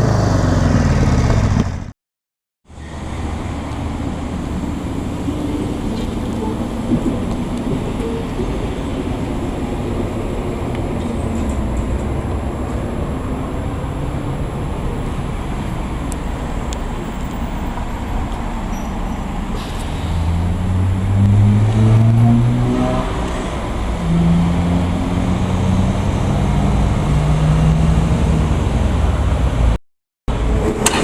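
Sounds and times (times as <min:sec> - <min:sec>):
motorcycle engine rumbling: 0:00.0 - 0:01.9.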